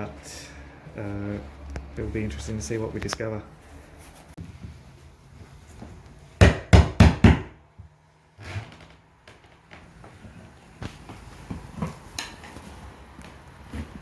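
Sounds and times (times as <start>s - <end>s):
loud knocks: 6.4s - 7.5s.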